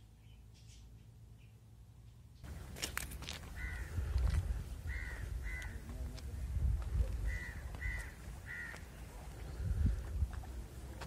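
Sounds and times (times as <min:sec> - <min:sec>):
bird calling: 0:03.5 - 0:04.2, 0:07.2 - 0:09.6
wind rumble on microphone: 0:03.6 - 0:11.0.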